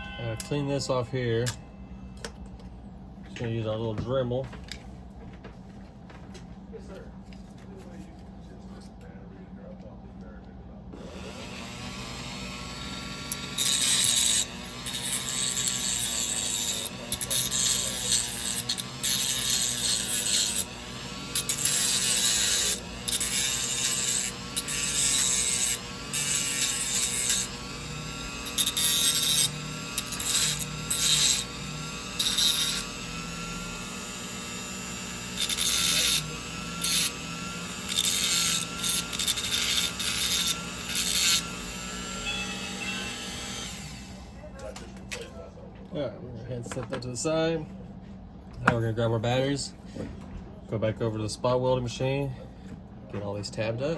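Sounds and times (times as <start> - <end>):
grinding and scraping on metal: 11.0 - 44.2
rotary tool whining: 11.0 - 45.3.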